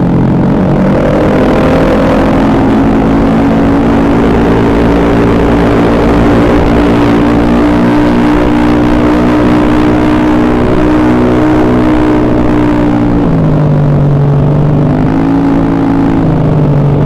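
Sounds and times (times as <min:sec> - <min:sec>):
scooter engine running: 0:00.0 - 0:17.0.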